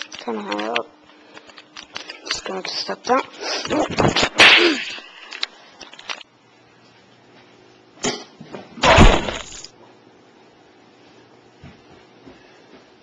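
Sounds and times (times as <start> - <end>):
loud crash of breaking: 8.8 - 9.7.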